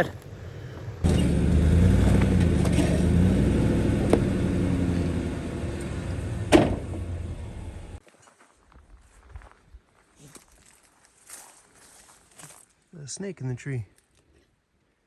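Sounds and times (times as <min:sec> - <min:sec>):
van engine running: 0:00.2 - 0:08.0.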